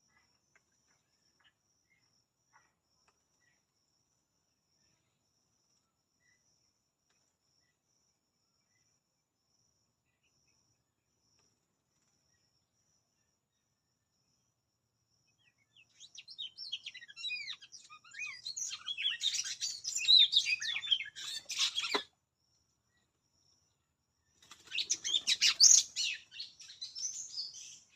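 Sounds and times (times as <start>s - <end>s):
faint high insect trill: 0.0s - 27.9s
birds chirping: 15.3s - 22.1s, 24.3s - 27.9s.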